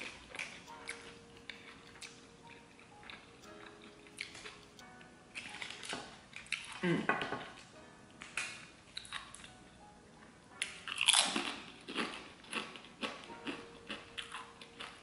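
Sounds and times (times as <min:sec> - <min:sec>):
crunchy chip chewing: 0:00.0 - 0:04.8, 0:05.4 - 0:07.7, 0:10.6 - 0:15.0.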